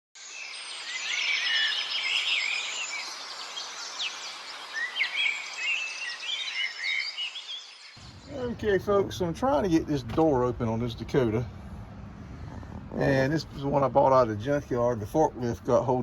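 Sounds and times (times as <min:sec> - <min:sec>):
birds chirping and singing: 0:00.2 - 0:10.2.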